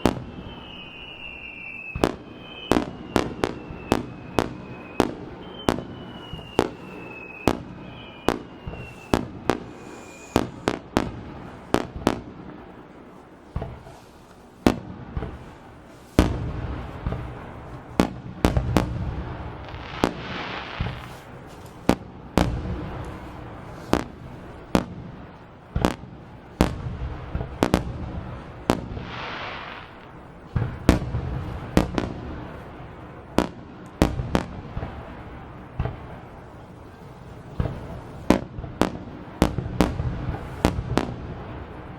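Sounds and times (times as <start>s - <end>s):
low firework booms: 0.0s - 41.9s
firework shell bursts: 8.2s - 10.8s.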